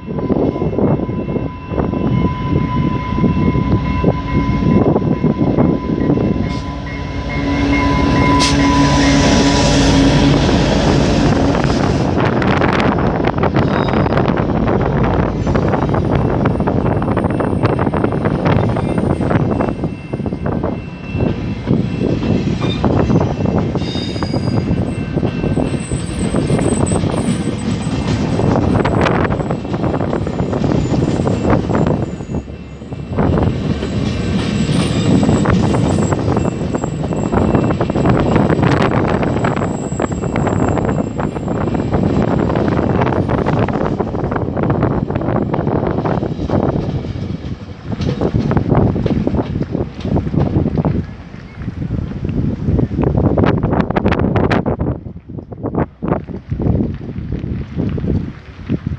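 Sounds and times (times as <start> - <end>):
train rumbling past: 0.0 - 58.9
wind buffeting microphone: 0.0 - 58.9
train wheels clattering: 4.9 - 54.2.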